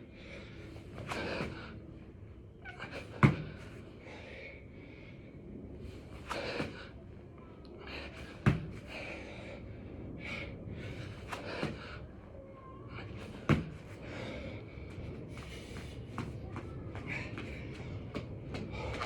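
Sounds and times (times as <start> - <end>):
person breathing hard: 7.7 - 12.3, 12.9 - 16.3.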